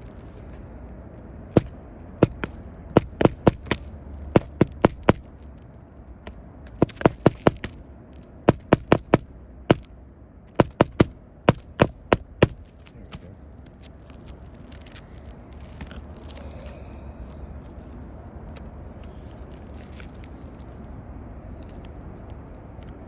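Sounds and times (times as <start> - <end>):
hammer striking roofing nails: 1.6 - 5.3, 6.8 - 7.8, 8.5 - 10.0, 10.6 - 12.9.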